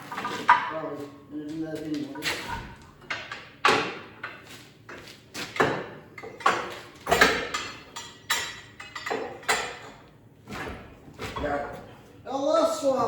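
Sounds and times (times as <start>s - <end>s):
tools clunking and knocking: 2.1s - 11.7s.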